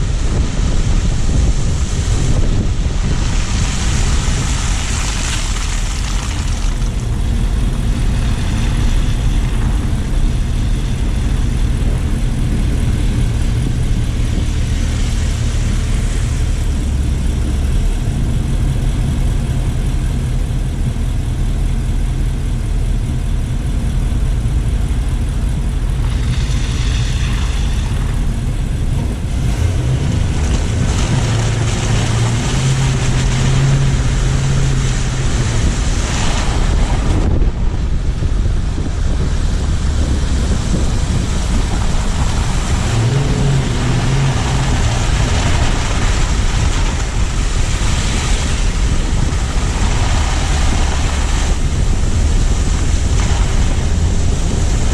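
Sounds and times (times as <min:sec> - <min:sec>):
car engine rumble: 0:00.0 - 0:54.9
wind buffeting microphone: 0:00.0 - 0:54.9.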